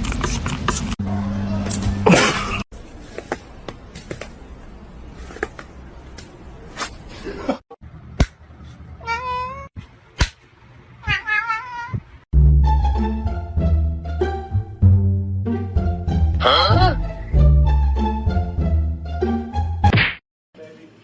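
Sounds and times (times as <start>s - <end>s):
cat meowing: 9.0s - 9.7s, 11.0s - 12.1s.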